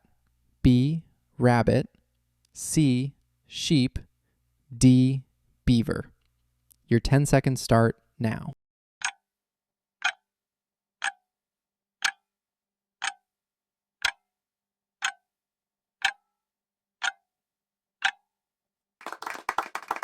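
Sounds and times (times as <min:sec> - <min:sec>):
clock ticking: 0:09.0 - 0:09.2, 0:10.0 - 0:10.3, 0:11.0 - 0:11.2, 0:12.0 - 0:12.3, 0:13.0 - 0:13.3, 0:14.0 - 0:14.3, 0:15.0 - 0:15.3, 0:16.0 - 0:16.2, 0:17.0 - 0:17.3, 0:18.0 - 0:18.2
applause: 0:19.0 - 0:20.0.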